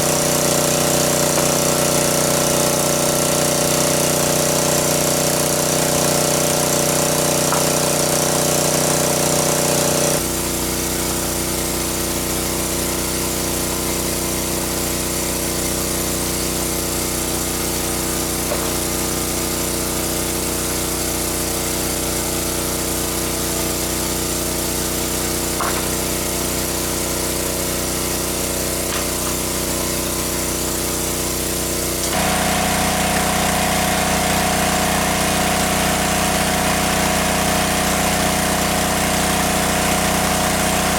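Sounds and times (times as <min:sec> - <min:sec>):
small engine droning: 0:00.0 - 0:13.0, 0:25.1 - 0:40.9.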